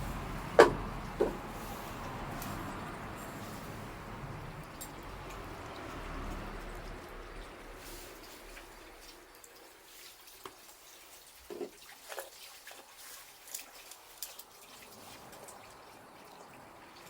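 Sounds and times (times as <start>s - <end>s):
wood fire crackling: 0.0s - 9.5s.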